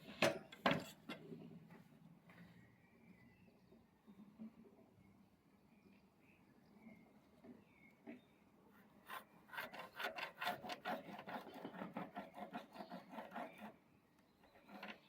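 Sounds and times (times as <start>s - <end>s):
rasp scraping wood: 8.8s - 13.8s, 14.4s - 15.0s.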